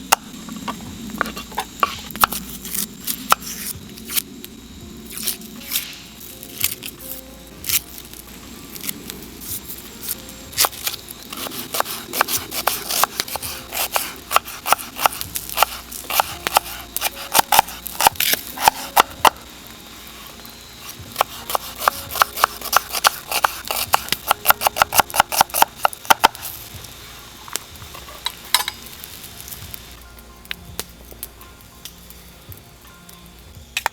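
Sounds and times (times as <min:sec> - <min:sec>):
knife chopping on wooden board: 0:00.1 - 0:04.2, 0:11.4 - 0:19.4, 0:21.1 - 0:26.4.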